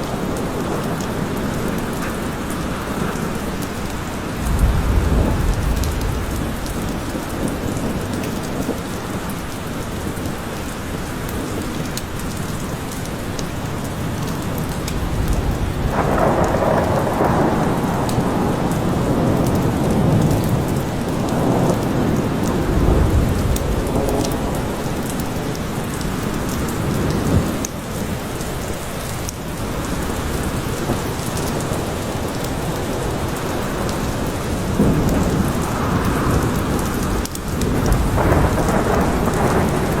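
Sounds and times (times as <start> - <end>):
thunder rumbling: 0.0 - 9.3, 14.0 - 27.7, 29.6 - 40.0
steady rain in a forest: 0.0 - 40.0.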